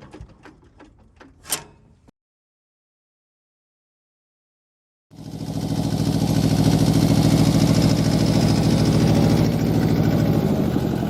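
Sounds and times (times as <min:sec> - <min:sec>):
tractor diesel engine running: 0:05.1 - 0:11.0.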